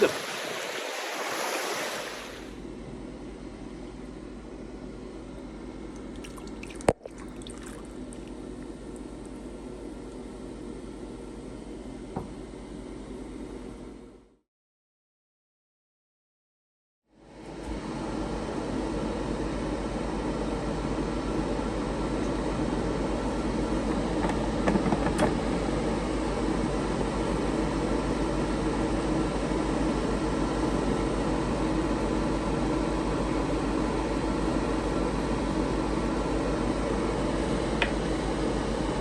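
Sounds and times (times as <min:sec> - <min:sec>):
air fryer fan whirring: 0:07.4 - 0:14.1, 0:17.2 - 0:39.0.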